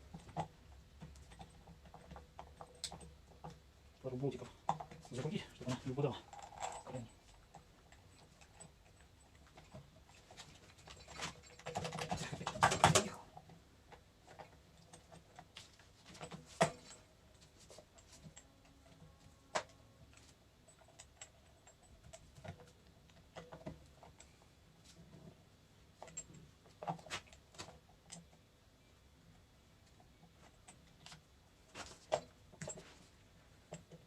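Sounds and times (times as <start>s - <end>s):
metal parts rattling: 4.7s - 13.3s.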